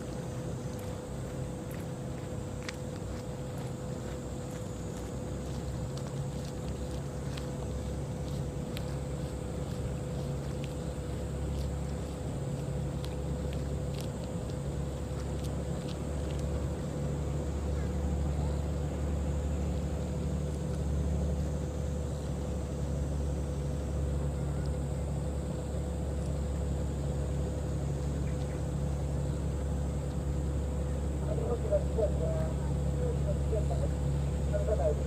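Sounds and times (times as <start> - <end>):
boat diesel engine rumbling: 0.0 - 35.0.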